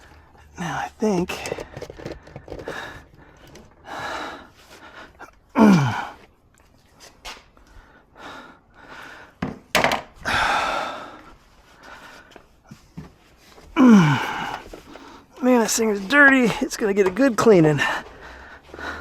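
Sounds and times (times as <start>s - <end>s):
plastic parts clicking: 1.3s - 3.8s
man breathing hard: 1.4s - 6.3s, 7.6s - 9.5s, 10.2s - 12.8s, 13.6s - 15.4s, 17.8s - 19.0s
man groaning with effort: 5.6s - 6.2s, 13.8s - 14.6s.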